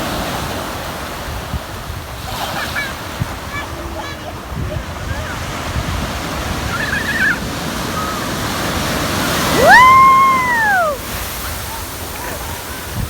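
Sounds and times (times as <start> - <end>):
ocean surf washing: 0.0 - 13.0
long high squeal: 9.5 - 11.2.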